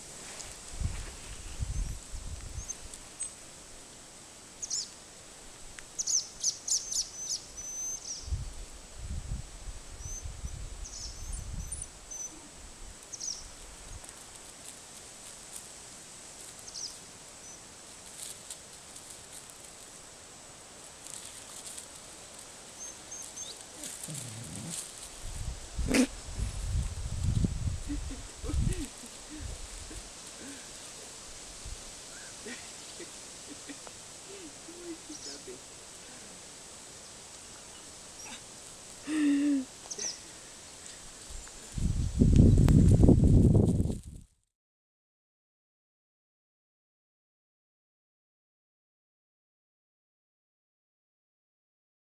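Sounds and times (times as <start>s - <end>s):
outdoor background noise: 0.0s - 44.4s
small birds chirping: 1.6s - 3.4s, 4.6s - 5.0s, 6.0s - 8.6s, 10.0s - 13.6s, 16.5s - 18.3s, 21.1s - 26.4s, 32.1s - 36.4s, 37.0s - 41.7s.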